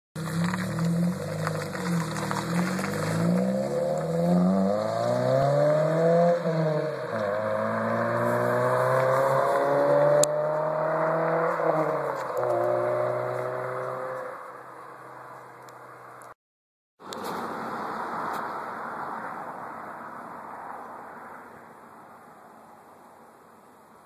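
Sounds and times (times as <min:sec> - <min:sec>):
car engine accelerating: 0:00.2 - 0:15.5.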